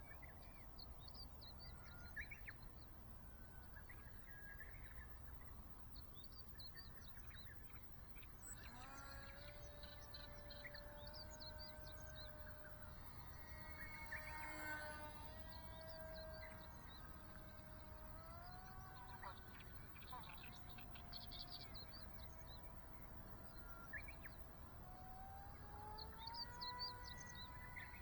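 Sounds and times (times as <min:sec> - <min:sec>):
faint birds chirping: 0:00.0 - 0:28.0
small plane motor whining: 0:00.0 - 0:28.0
low outdoor rumble: 0:08.1 - 0:28.0.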